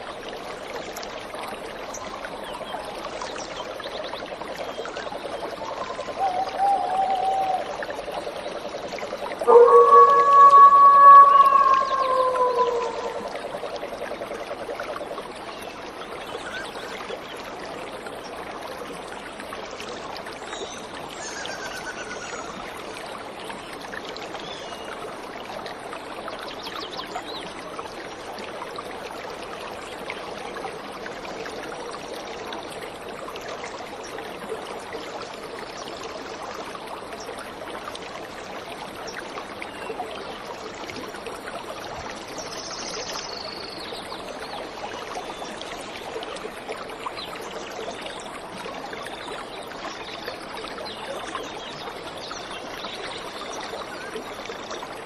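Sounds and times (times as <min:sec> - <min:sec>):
waterfall rushing: 0:09.4 - 0:13.7
short high bird call: 0:09.5 - 0:13.4.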